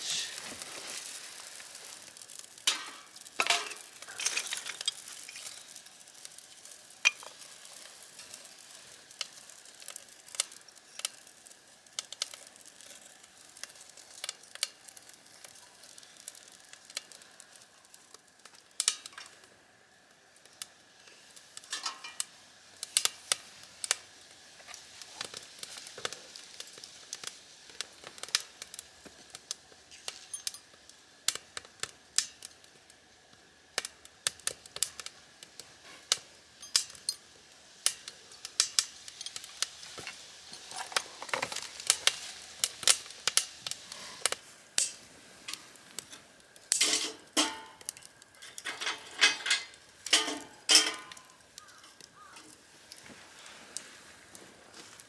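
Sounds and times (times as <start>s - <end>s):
faint sizzle: 0.0s - 55.0s
utensils clinking against dishes: 2.7s - 5.7s, 21.7s - 22.2s, 36.6s - 37.2s, 46.7s - 51.3s.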